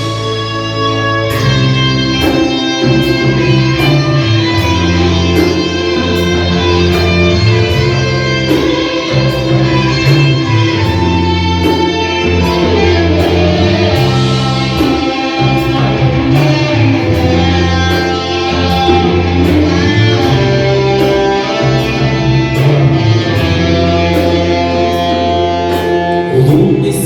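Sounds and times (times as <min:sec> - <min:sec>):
electric guitar: 0:00.0 - 0:27.0
rock band playing: 0:00.0 - 0:27.0.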